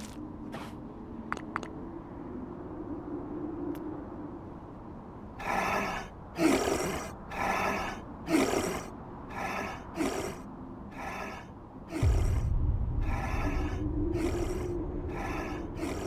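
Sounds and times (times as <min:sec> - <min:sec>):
raspy wheezing breathing: 0:05.4 - 0:16.0.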